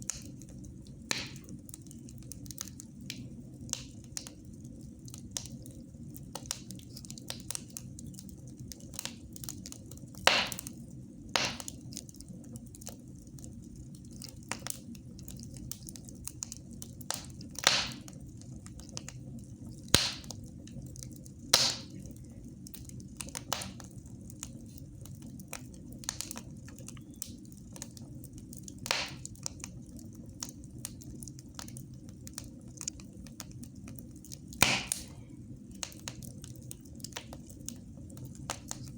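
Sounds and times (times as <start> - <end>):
sharp pops of fire: 0.0 - 1.7, 2.3 - 4.4, 6.3 - 8.2, 8.8 - 12.1, 15.6 - 20.6, 21.5 - 22.1, 22.8 - 24.6, 25.5 - 29.8, 34.4 - 38.9
wood fire crackling: 0.0 - 38.9.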